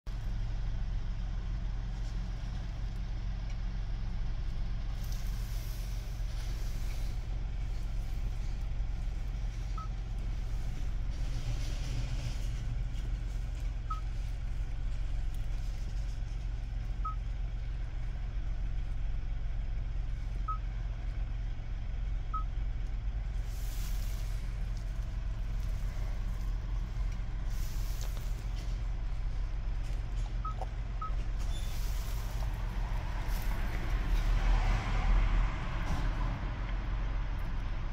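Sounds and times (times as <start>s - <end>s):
car engine idling: 0.1s - 37.9s
hiss: 5.0s - 7.2s, 23.4s - 24.5s.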